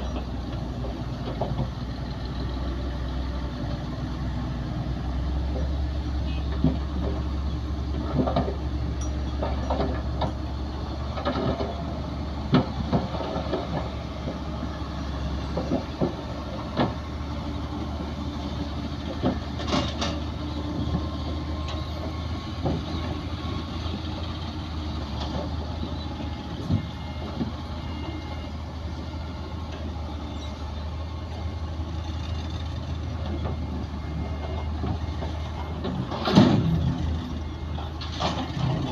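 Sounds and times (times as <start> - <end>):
heavy diesel engines droning: 0.0 - 38.9.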